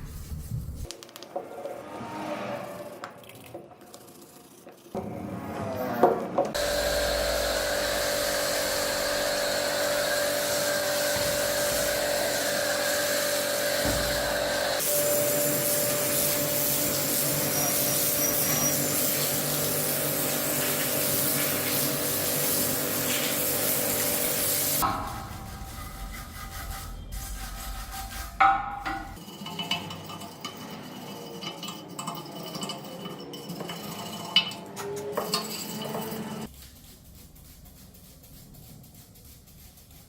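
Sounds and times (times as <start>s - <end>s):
power tool whining: 6.6s - 14.8s.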